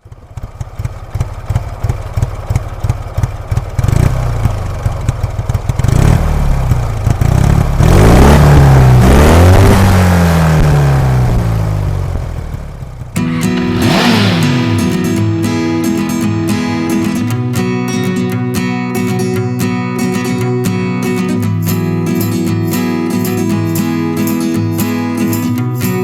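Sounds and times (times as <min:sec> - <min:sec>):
motorcycle engine revving: 0:00.1 - 0:17.7.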